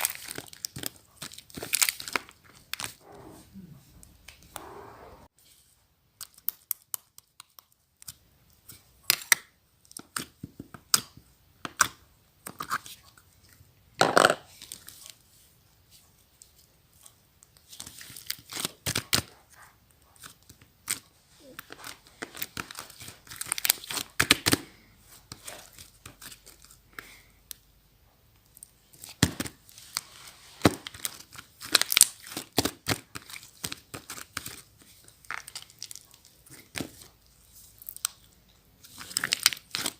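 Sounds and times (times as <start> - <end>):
slime crackling and popping: 30.6 - 37.1, 37.8 - 39.9.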